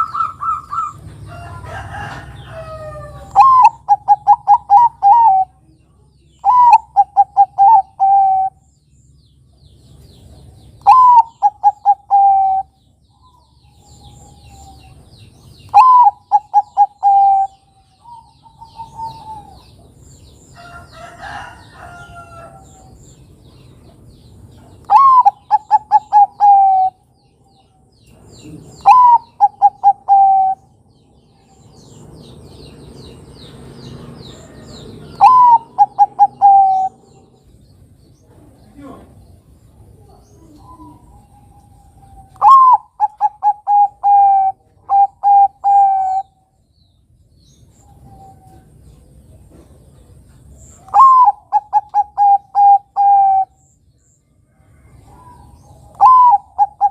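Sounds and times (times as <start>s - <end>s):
dove cooing: 0.0s - 5.6s, 6.4s - 8.6s, 10.8s - 15.0s, 15.7s - 20.0s, 24.8s - 27.1s, 28.4s - 30.8s, 34.4s - 37.5s, 39.8s - 46.4s, 50.8s - 53.7s, 54.8s - 56.9s
small birds chirping: 0.0s - 56.9s.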